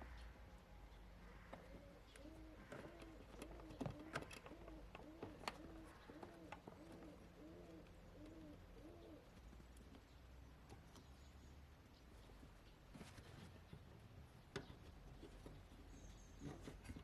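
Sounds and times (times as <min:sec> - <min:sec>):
faint bird cooing: 0:00.0 - 0:10.1.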